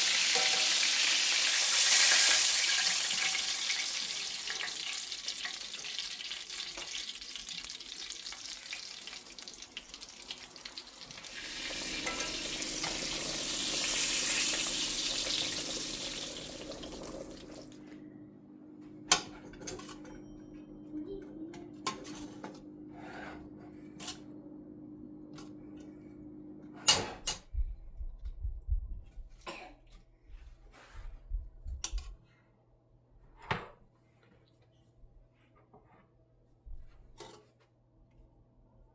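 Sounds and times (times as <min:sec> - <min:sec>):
water running from a tap: 0:00.0 - 0:17.8
dishes and utensils clinking: 0:00.3 - 0:01.0, 0:11.4 - 0:13.7, 0:19.1 - 0:20.8.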